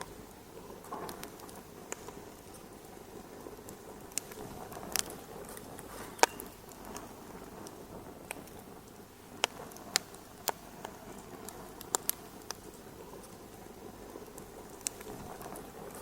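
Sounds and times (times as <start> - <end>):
sharp pops from fire: 0.0 - 16.0
wood fire crackling: 0.0 - 16.0.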